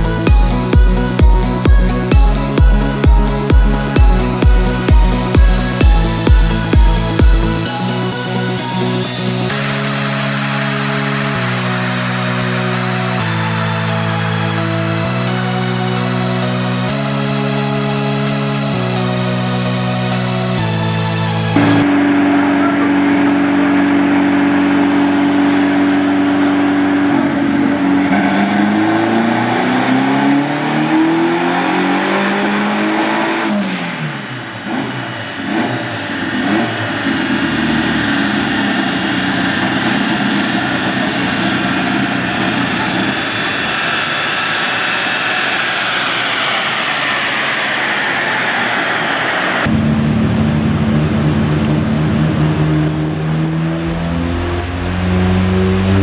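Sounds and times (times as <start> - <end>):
car engine revving: 0.0 - 56.0
high whistle: 21.6 - 34.1.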